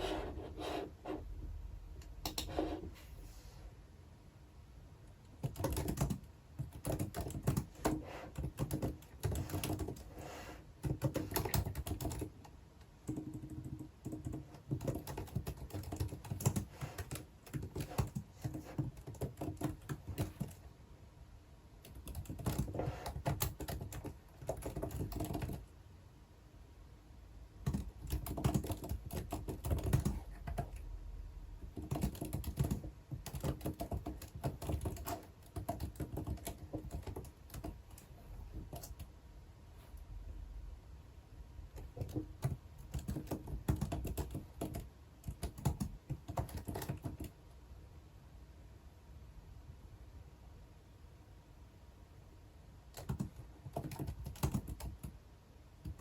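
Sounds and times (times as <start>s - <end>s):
typing on computer keyboard: 2.2s - 2.6s, 5.3s - 10.2s, 10.8s - 20.7s, 21.8s - 25.7s, 27.6s - 30.9s, 31.6s - 39.1s, 41.7s - 47.4s, 52.9s - 55.2s, 55.8s - 56.0s.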